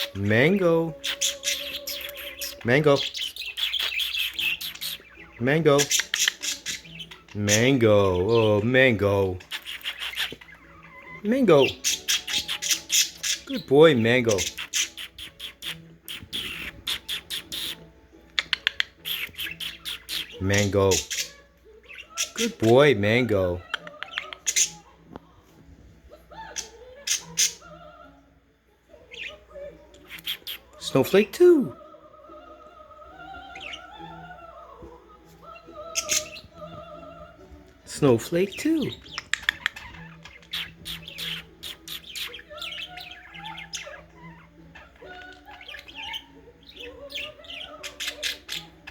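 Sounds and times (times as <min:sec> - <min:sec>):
budgerigar warbling: 0:00.0 - 0:24.9, 0:35.5 - 0:36.9, 0:38.0 - 0:48.9
budgerigar high chirps: 0:00.0 - 0:25.0, 0:26.4 - 0:27.8, 0:29.0 - 0:31.6, 0:35.4 - 0:37.2, 0:37.9 - 0:48.9.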